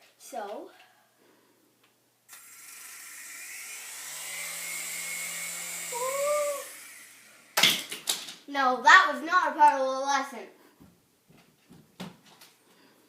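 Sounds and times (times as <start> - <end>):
toy helicopter motor whining: 2.3 - 7.6.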